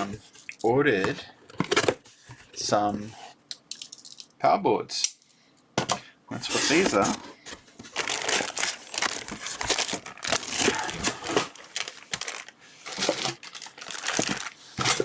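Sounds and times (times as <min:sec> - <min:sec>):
packaging crinkling and rustling: 0:06.4 - 0:15.0.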